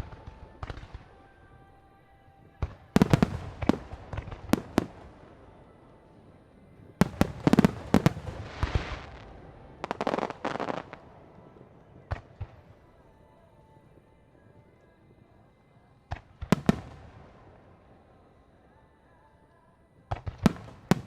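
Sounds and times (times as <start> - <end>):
fireworks bursting with sharp bangs: 0.0 - 1.7, 2.4 - 18.5, 20.0 - 21.0
hissing crackle: 2.6 - 21.0.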